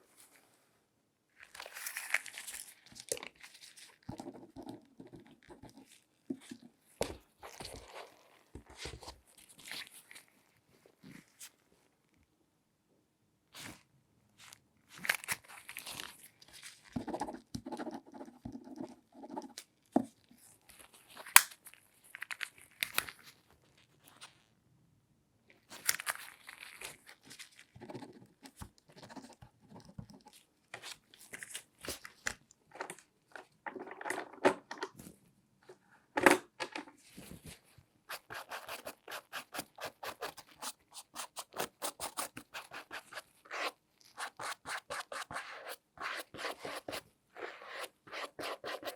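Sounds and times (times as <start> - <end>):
rustling crinkling rubs: 1.4 - 11.7, 14.4 - 17.4, 25.6 - 34.0.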